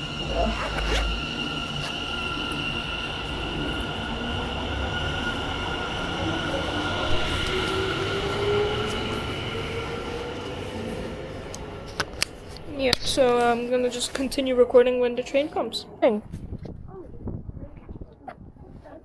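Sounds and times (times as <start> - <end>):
train motor whine: 0.0 - 14.4
steady high-pitched tones: 0.0 - 16.3.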